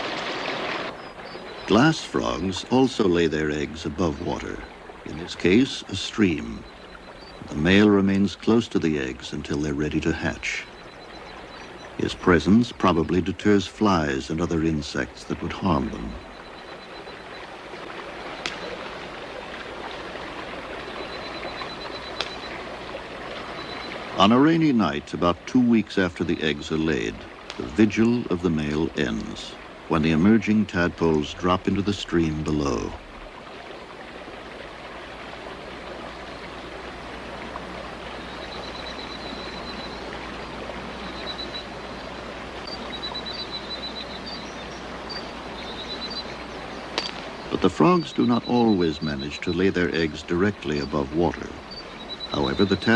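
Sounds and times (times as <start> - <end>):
rain: 0.0 - 52.9
stream water running: 0.0 - 52.9
small animal trilling calls: 38.1 - 49.4, 51.0 - 52.9
sharp clicks: 47.0 - 47.3.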